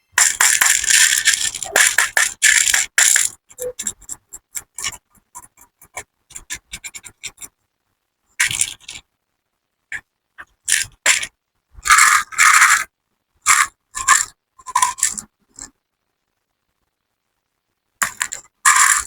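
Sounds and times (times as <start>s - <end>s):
hard candies clattering: 0.2s - 3.4s, 18.0s - 19.0s.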